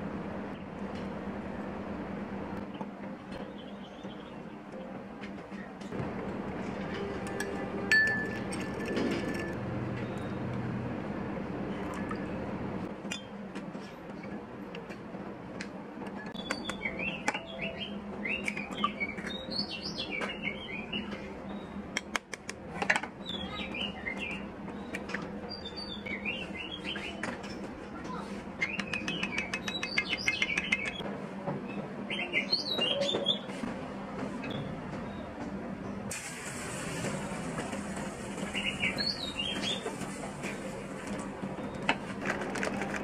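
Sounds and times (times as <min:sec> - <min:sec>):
spoon clinking against bowls: 0:07.3 - 0:09.6
small birds chirping: 0:23.2 - 0:27.2, 0:28.1 - 0:31.0, 0:38.5 - 0:39.9.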